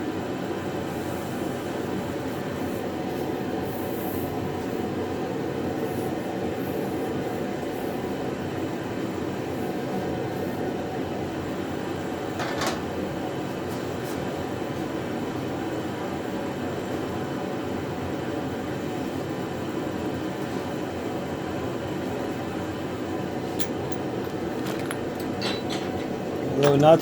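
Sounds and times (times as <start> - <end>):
metal part clinking: 23.5 - 27.0.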